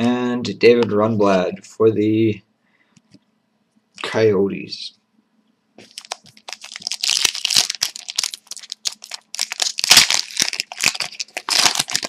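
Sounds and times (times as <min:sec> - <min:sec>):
wrapper tearing and crinkling: 0:05.8 - 0:12.0.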